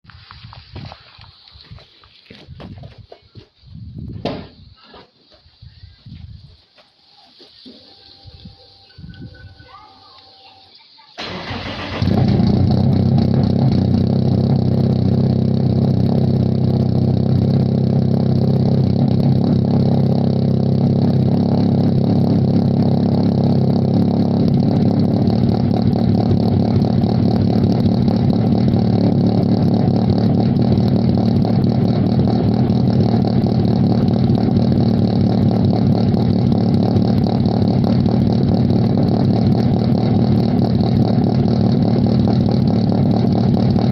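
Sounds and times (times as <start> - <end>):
loud raw car engine idling: 11.2 - 43.9.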